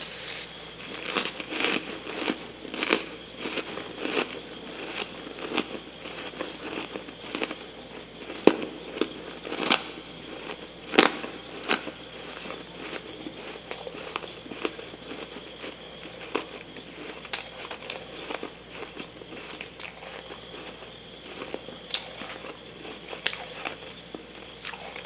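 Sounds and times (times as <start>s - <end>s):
chewing crunchy frost: 0.0s - 25.0s.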